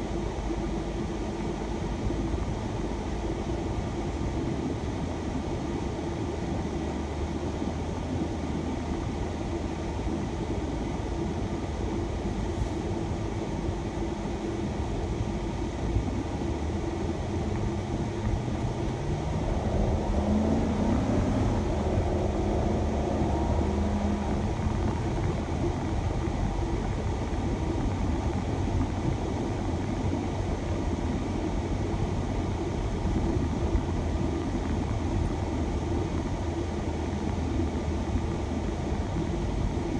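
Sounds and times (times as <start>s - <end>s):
van engine: 0.0s - 39.9s
road noise: 17.0s - 32.0s.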